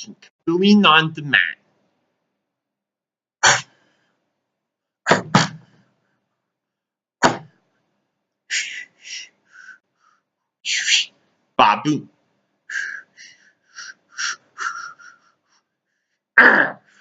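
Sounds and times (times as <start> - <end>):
short sharp cartoon hits: 5.1 - 5.7, 7.2 - 7.6.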